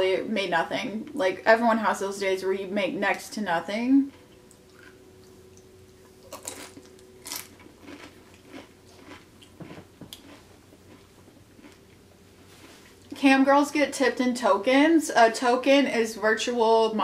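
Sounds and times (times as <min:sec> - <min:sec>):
chip crunching while chewed: 0:06.1 - 0:12.0.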